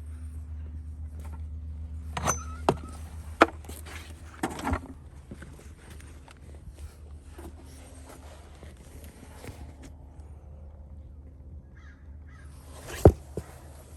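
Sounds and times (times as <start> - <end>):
steady low hum: 0.0 - 13.9
horse hooves stepping: 12.8 - 13.9.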